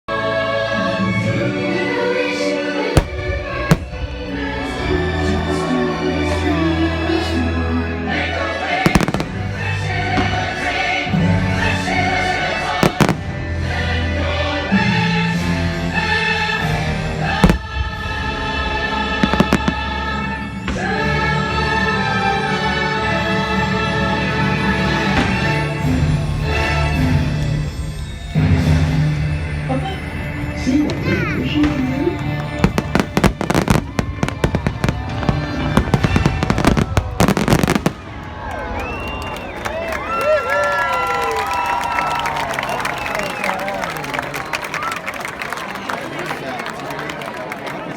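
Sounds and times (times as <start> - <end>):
music with choir-like voices: 0.0 - 40.1
fireworks cracking and popping: 8.8 - 10.5, 12.8 - 13.3, 19.2 - 20.0, 32.3 - 38.9.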